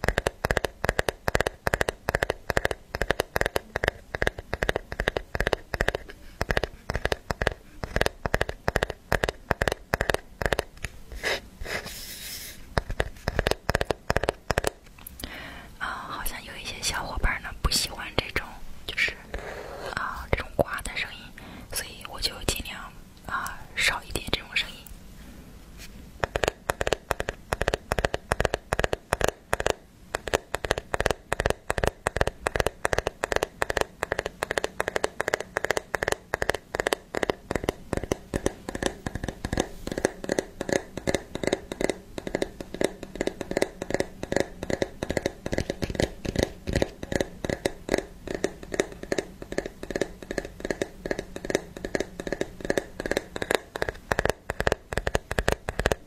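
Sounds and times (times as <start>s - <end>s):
rapid sharp clicking: 0.0s - 10.9s, 12.8s - 15.4s, 26.2s - 56.0s.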